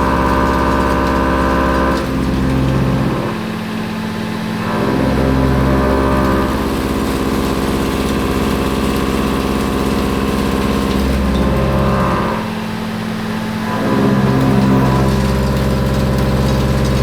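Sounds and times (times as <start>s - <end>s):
milling machine cutting steel: 0.0s - 17.0s.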